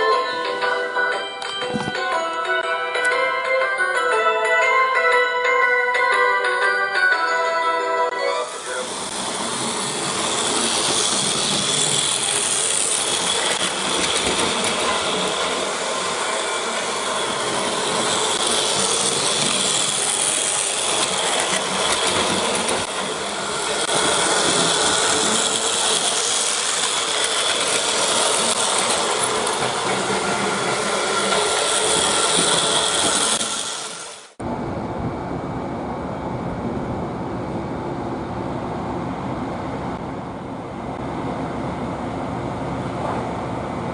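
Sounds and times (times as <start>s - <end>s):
toy train motor whirring: 8.5s - 34.3s.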